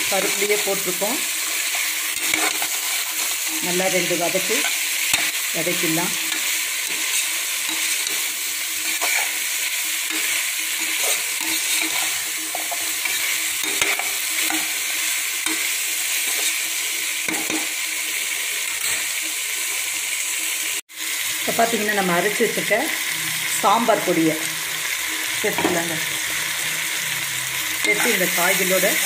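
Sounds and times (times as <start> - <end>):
vegetables sizzling in oil: 0.0 - 29.0
spatula clicking and scraping pot: 1.4 - 3.6, 6.3 - 14.8.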